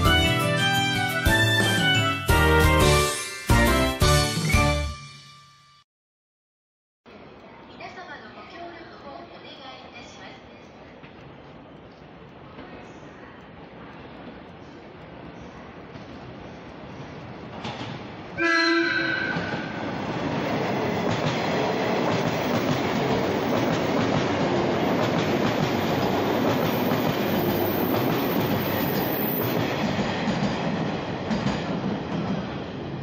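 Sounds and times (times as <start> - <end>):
train running past: 8.5 - 33.0
train horn blast: 18.4 - 19.7.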